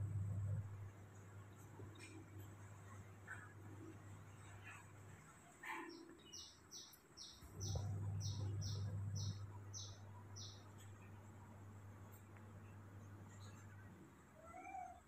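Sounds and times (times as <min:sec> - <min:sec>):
low rumble: 0:00.0 - 0:01.0
bird chirping: 0:05.6 - 0:11.2.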